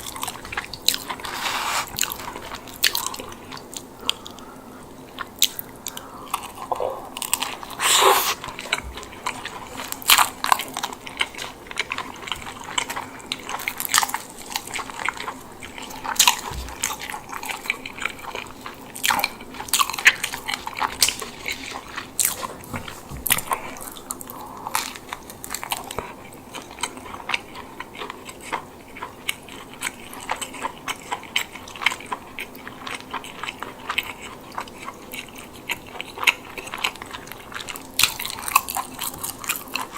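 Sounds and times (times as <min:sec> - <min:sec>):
bread crust crunching: 0:00.0 - 0:04.3, 0:05.3 - 0:39.9
wet chewing clicks: 0:00.0 - 0:04.5, 0:05.1 - 0:39.9.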